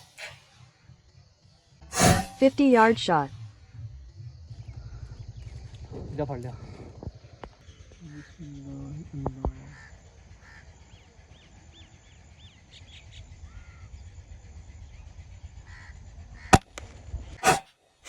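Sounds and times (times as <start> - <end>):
low outdoor rumble: 1.9 - 12.2
small birds chirping: 4.1 - 16.6.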